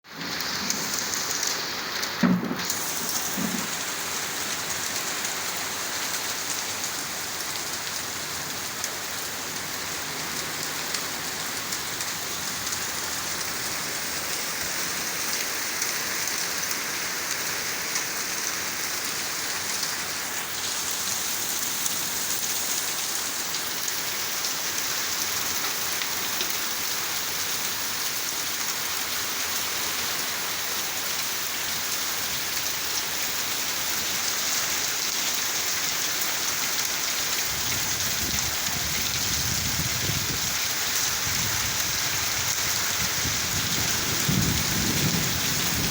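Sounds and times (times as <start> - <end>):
heavy rain and hail falling: 0.1 - 45.9
loud knock: 2.2 - 2.7.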